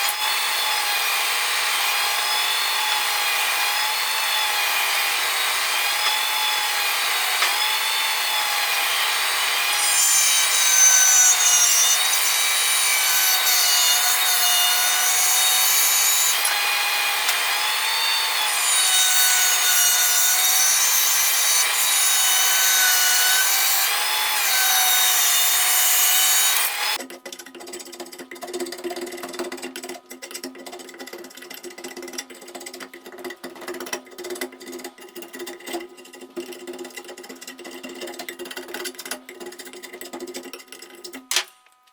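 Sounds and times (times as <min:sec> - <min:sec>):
power tool whining under load: 0:00.0 - 0:27.0.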